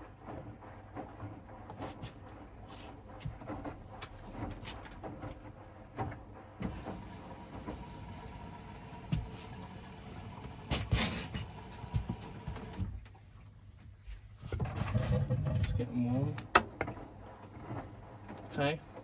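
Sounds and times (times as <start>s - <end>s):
washing machine humming: 0.0s - 19.0s
washing machine knocks and thuds: 5.9s - 13.1s.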